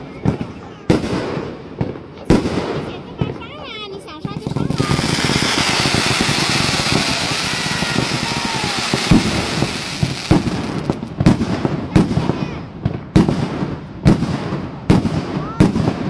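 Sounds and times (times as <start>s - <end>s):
fireworks crackling: 2.4s - 12.5s
fireworks bangs: 4.2s - 16.0s
fireworks whistles: 4.4s - 11.1s.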